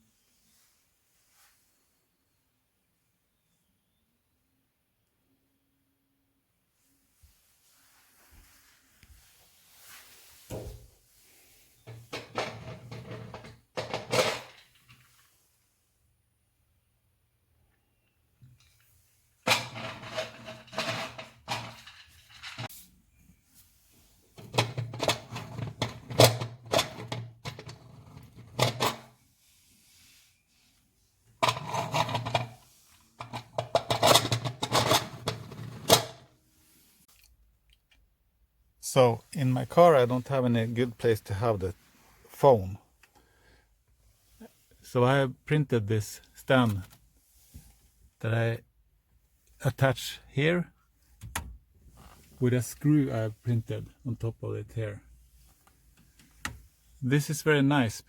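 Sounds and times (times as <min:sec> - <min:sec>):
handling scraping and rubbing: 0:07.6 - 0:15.4, 0:18.8 - 0:37.1.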